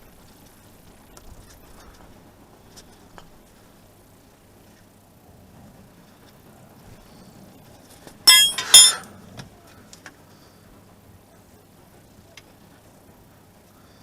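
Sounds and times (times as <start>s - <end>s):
metal-on-metal clinks: 8.3s - 9.1s.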